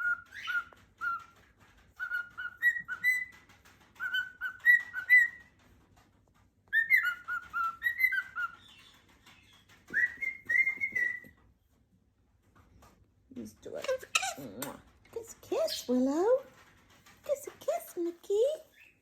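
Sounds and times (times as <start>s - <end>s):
parrot whistling: 2.0s - 3.4s, 4.0s - 5.4s, 6.7s - 8.7s, 9.9s - 11.3s.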